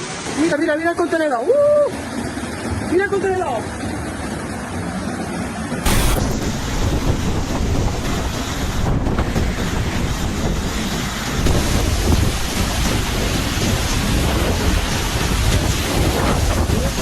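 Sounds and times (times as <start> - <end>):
storm wind on microphone: 5.8 - 17.0.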